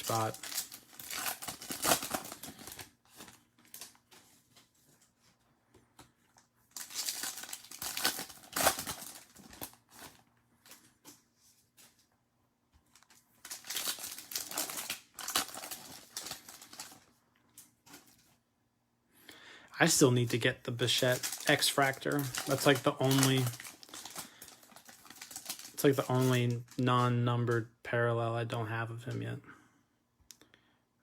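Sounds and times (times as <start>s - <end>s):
plastic wrappers tearing and crinkling: 0.0s - 4.8s, 6.7s - 11.1s, 12.9s - 18.3s, 19.8s - 27.1s.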